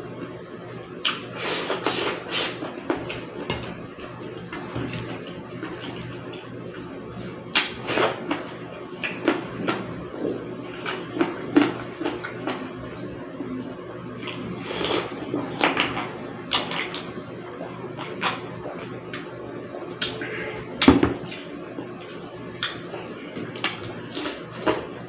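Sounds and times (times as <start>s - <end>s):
person chewing: 14.2s - 24.9s.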